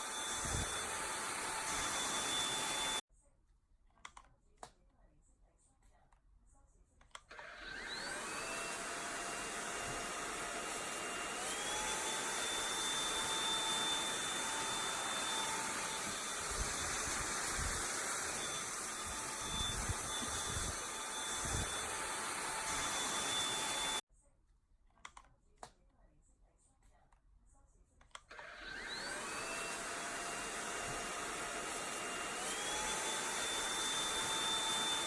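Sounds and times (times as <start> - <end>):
robot vacuum motor whine: 0.0 - 3.0, 7.3 - 24.0, 28.3 - 35.0.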